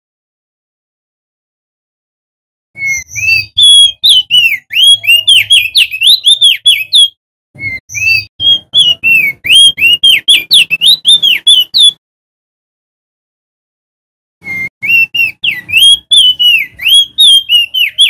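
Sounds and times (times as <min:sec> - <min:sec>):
bird singing whistled notes: 0:02.8 - 0:12.0, 0:14.4 - 0:18.0.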